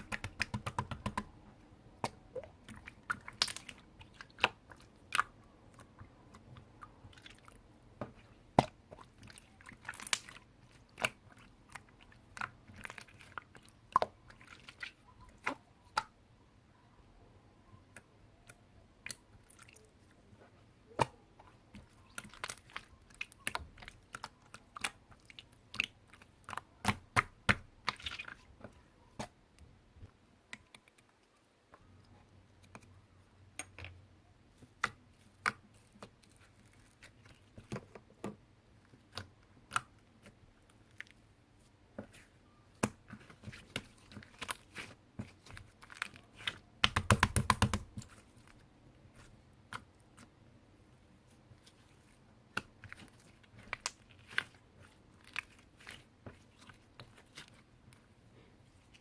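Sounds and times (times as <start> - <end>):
slime clicking and popping: 0.0 - 1.3, 46.0 - 48.2.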